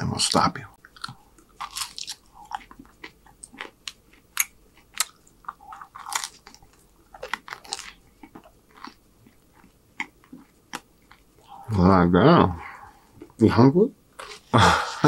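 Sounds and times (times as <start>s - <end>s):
chewing with crisp crunches: 0.2s - 11.6s.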